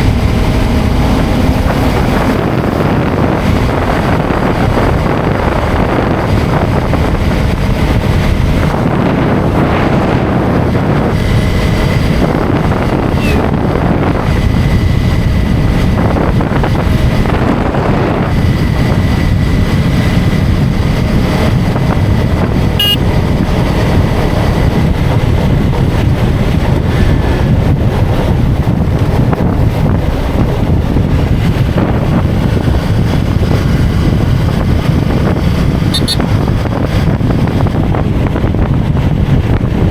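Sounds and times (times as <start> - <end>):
wind buffeting microphone: 0.0 - 39.9
motorcycle engine running: 18.4 - 27.0, 28.5 - 39.9.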